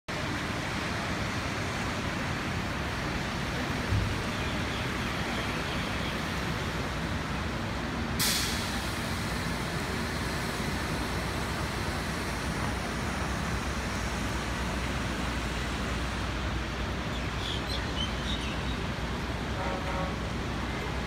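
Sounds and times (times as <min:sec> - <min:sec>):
city traffic on wet streets: 0:00.1 - 0:21.0
heavy rain hissing: 0:00.2 - 0:21.0.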